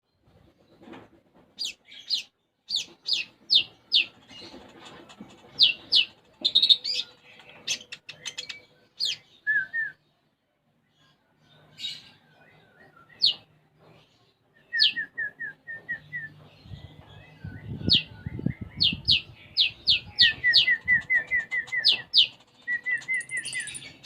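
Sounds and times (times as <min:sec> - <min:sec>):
sunbird singing chirps and trills: 0:15.9 - 0:24.0.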